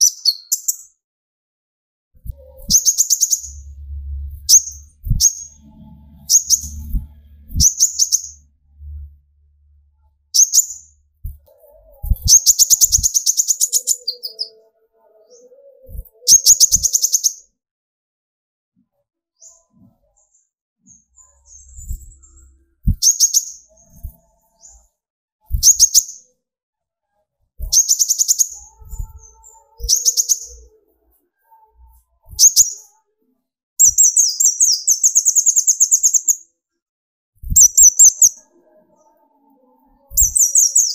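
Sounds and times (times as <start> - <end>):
sunbird singing: 2.4 - 9.1, 10.2 - 17.4, 27.6 - 30.8, 37.6 - 39.2, 40.0 - 40.9.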